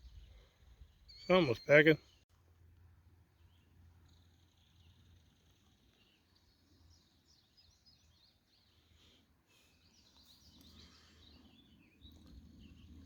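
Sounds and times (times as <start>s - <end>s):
high bird chirping: 1.0s - 2.2s.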